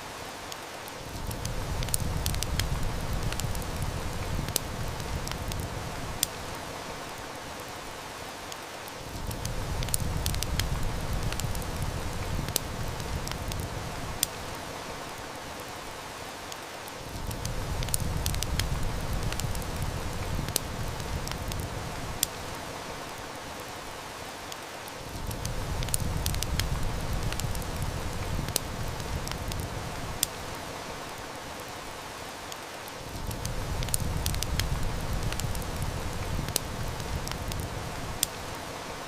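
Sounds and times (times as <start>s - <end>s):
heavy rain: 0.0s - 39.0s
wood fire crackling: 0.0s - 39.0s.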